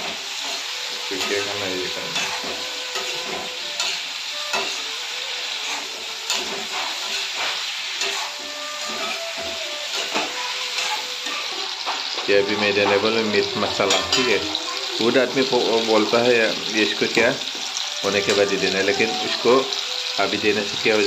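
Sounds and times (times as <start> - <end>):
metal spatula scraping pan: 0.0 - 14.8
meat and peppers sizzling: 0.0 - 21.0.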